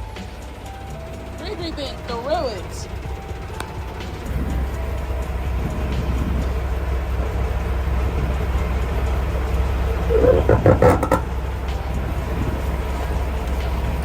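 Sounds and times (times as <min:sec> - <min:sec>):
diesel truck engine idling: 0:00.0 - 0:14.0
knocks and clanks: 0:00.0 - 0:14.0.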